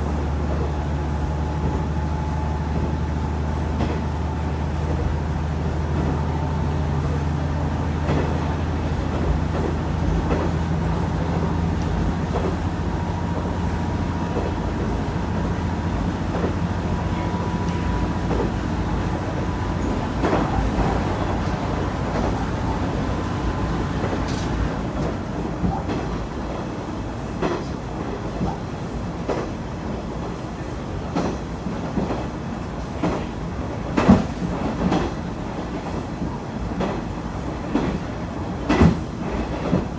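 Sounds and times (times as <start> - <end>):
diesel engine low drone: 0.0 - 25.9
wheels clicking over rail joints: 0.0 - 26.6.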